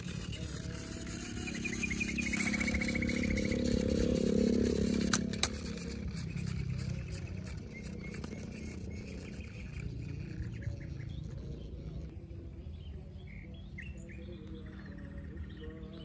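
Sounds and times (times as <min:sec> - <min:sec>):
low rumble: 0:00.0 - 0:12.6
birds chirping: 0:00.0 - 0:16.0.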